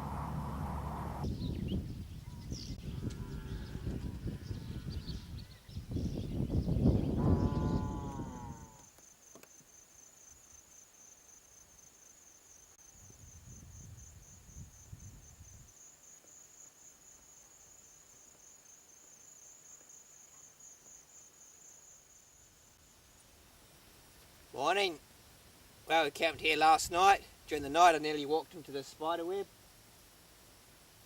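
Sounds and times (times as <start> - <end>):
low rumble: 0.0 - 1.4
cricket trilling: 7.1 - 22.9.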